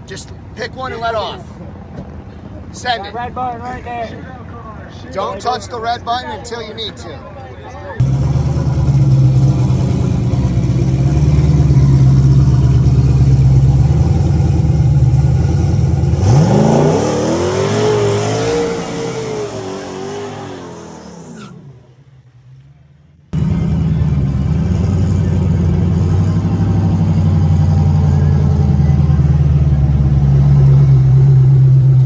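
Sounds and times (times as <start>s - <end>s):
drag car launching: 8.0s - 22.8s
drag car engine rumbling: 8.0s - 32.0s.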